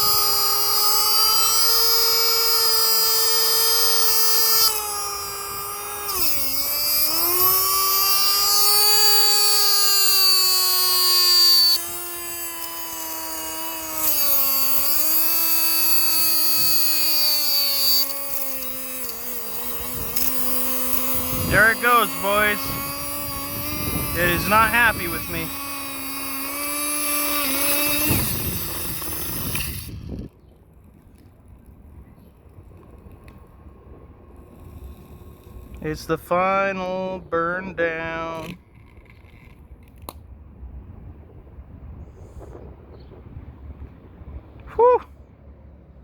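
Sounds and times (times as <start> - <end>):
vacuum cleaner motor whining: 0.0 - 30.3.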